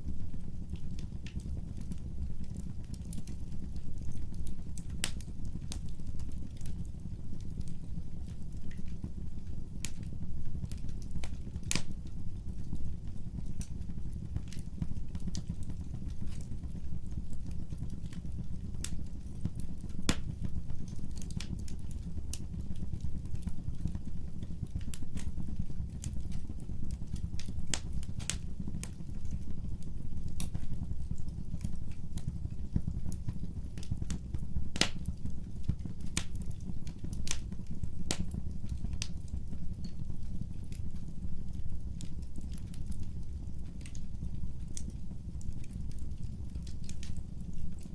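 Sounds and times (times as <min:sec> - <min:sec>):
wood fire crackling and popping: 0:00.0 - 0:47.9.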